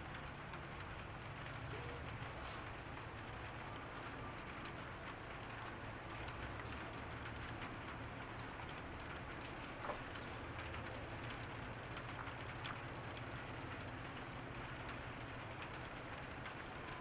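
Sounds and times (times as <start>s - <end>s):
rain patter: 0.0s - 17.0s.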